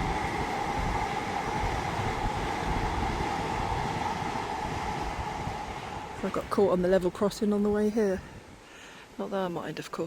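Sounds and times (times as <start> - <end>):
train whine: 0.0 - 7.7
passenger train passing: 0.0 - 8.3.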